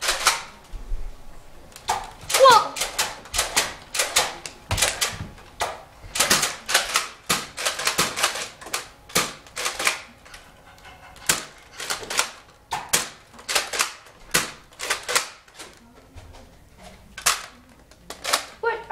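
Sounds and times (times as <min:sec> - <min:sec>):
toy blasters clacking and snapping: 0:00.0 - 0:00.5, 0:01.8 - 0:10.1, 0:11.2 - 0:15.8, 0:17.2 - 0:18.6.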